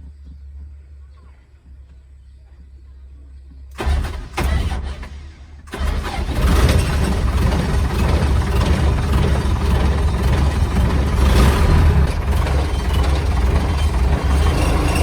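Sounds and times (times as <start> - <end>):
truck engine rumbling: 3.6 - 15.0
starter cranking: 3.8 - 15.0.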